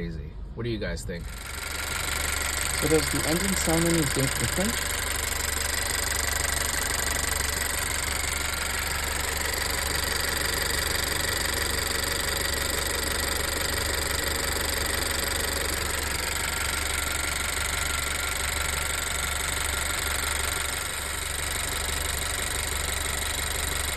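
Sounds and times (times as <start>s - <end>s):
car engine running: 1.1s - 23.9s.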